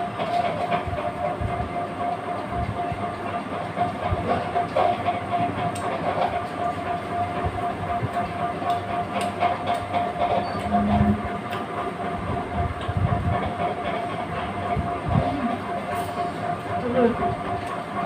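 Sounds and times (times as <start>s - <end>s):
mechanical drone with hum: 0.0s - 18.0s.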